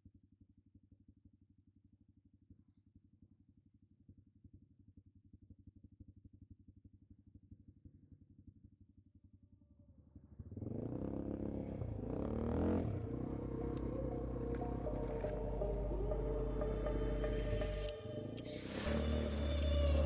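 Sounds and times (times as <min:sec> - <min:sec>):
quad bike engine idling and revving: 0:05.3 - 0:20.0.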